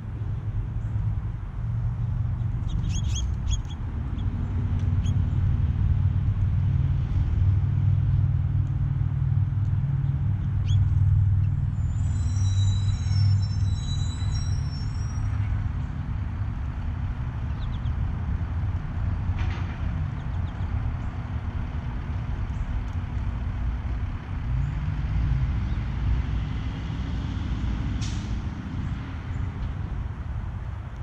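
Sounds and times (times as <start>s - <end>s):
motor vehicle engine rumble: 0.0s - 31.0s
faint bird chirps: 2.6s - 4.3s, 10.6s - 15.5s.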